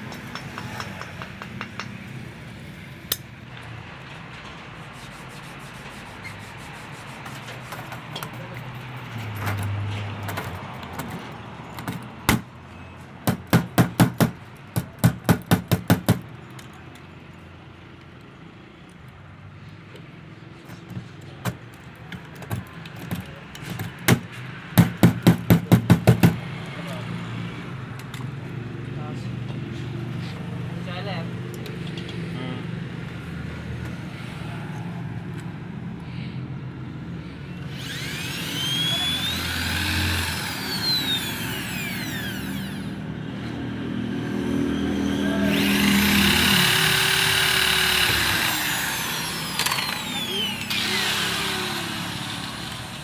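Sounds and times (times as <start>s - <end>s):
rapid sharp knocking: 24.8s - 26.4s.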